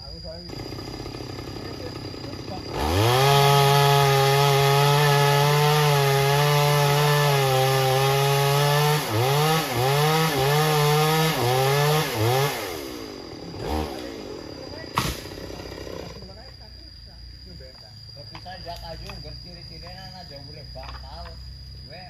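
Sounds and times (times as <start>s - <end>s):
chainsaw cutting wood: 0.5s - 16.4s.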